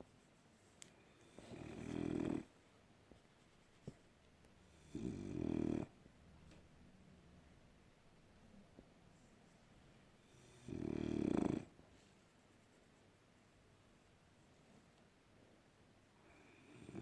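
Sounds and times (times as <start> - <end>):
dog snoring: 1.2 - 2.5, 4.7 - 6.0, 10.3 - 11.7, 16.5 - 17.0
faint breathing: 16.2 - 17.0.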